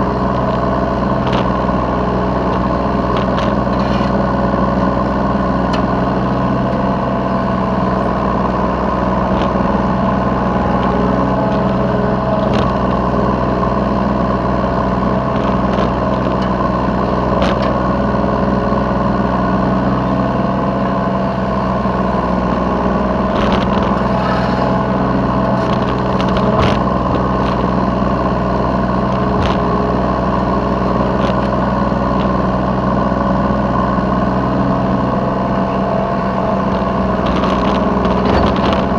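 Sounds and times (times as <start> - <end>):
excavator diesel engine running: 0.0 - 38.9
machine knocks and clanks: 37.2 - 38.9.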